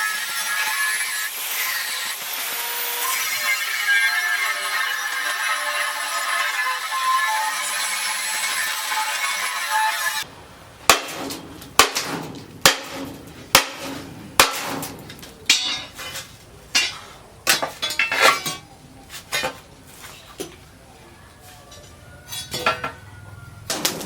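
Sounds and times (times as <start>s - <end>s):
hammer striking steel: 10.9s - 18.7s.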